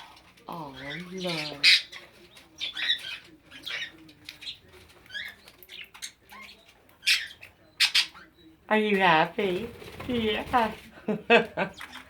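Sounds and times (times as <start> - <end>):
budgerigars chirping: 0.0 - 8.6.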